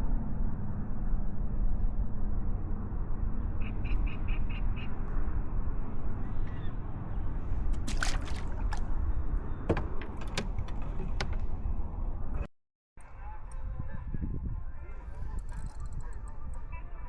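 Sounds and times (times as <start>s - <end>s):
wind rumble on microphone: 0.0s - 17.0s
sharp clicks and knocks: 9.7s - 11.6s.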